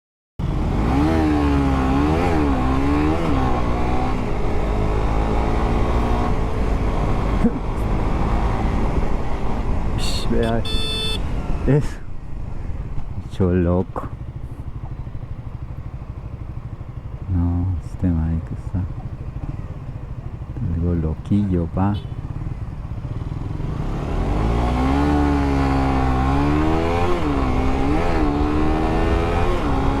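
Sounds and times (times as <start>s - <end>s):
motorcycle engine revving: 0.4s - 30.0s
traffic rumble: 0.4s - 30.0s.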